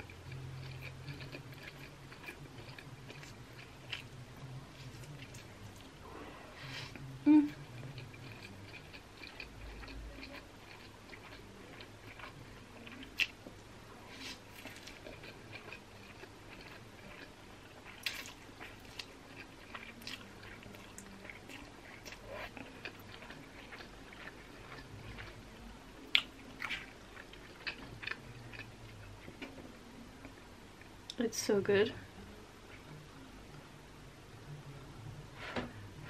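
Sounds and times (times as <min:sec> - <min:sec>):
chewing noodles: 0:00.0 - 0:06.0, 0:06.9 - 0:29.6.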